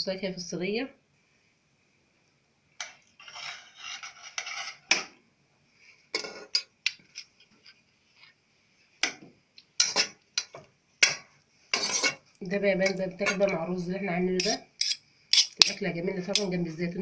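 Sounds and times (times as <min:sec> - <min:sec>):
metal utensil scraping a pan: 0:02.8 - 0:05.1, 0:06.1 - 0:07.8, 0:09.8 - 0:12.2, 0:14.4 - 0:15.6.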